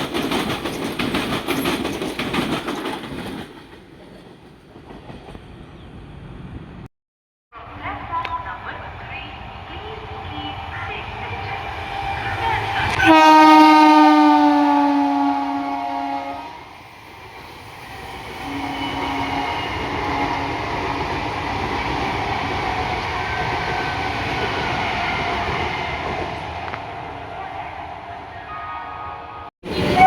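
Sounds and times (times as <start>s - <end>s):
train running on track: 0.0s - 6.9s, 7.6s - 30.0s
train horn blasts: 12.8s - 16.7s, 18.4s - 20.9s, 28.4s - 30.0s.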